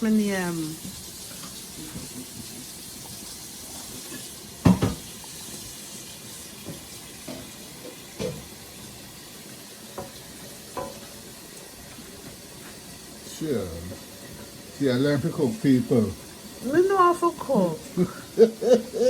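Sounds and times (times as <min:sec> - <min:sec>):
onions sizzling in butter: 0:00.0 - 0:19.0
utensil knocking on pan: 0:04.6 - 0:05.1, 0:10.8 - 0:11.0.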